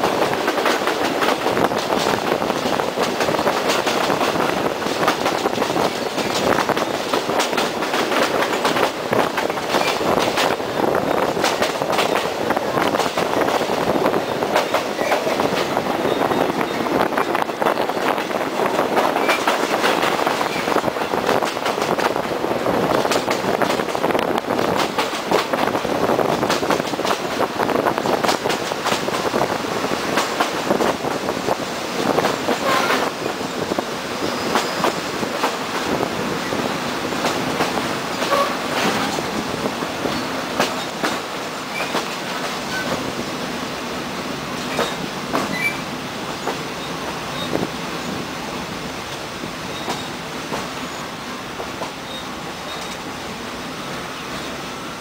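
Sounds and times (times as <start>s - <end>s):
clatter over rail joints: 0.0s - 36.1s, 37.1s - 43.1s, 44.5s - 45.8s, 49.1s - 50.8s
train wheel and rail noise: 0.0s - 55.0s
wheels squealing: 44.7s - 45.9s.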